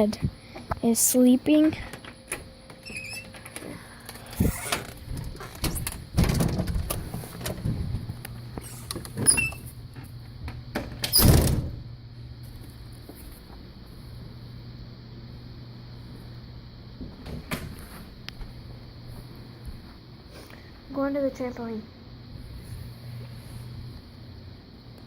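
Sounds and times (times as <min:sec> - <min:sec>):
knocks and rustling: 0:03.3 - 0:09.3.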